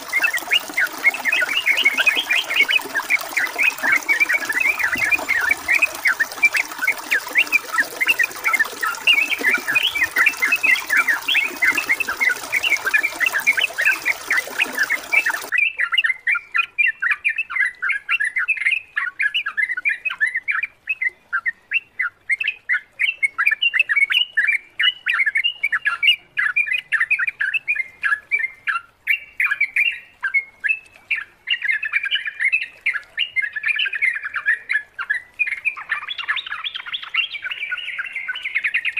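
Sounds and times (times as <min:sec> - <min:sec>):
bulbuls chattering: 0:00.0 - 0:15.5
running water: 0:00.0 - 0:15.8.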